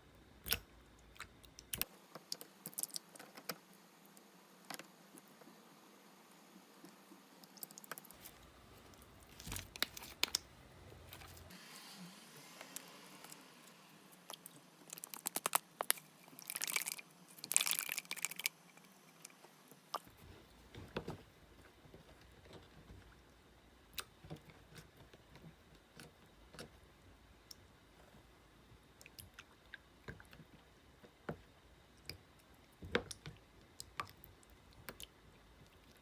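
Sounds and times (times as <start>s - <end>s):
slime clicking and crackling: 14.3s - 18.5s.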